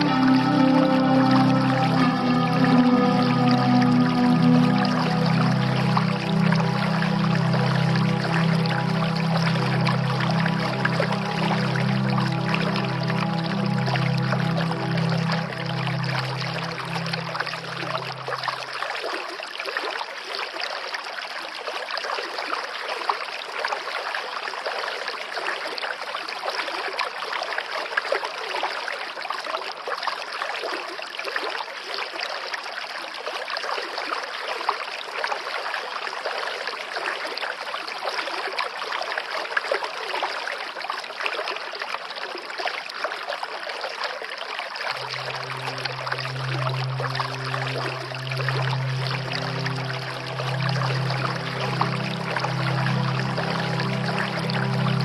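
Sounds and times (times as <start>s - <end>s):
soft held music tone: 0.0s - 19.0s, 44.9s - 55.0s
running water trickling: 41.7s - 55.0s.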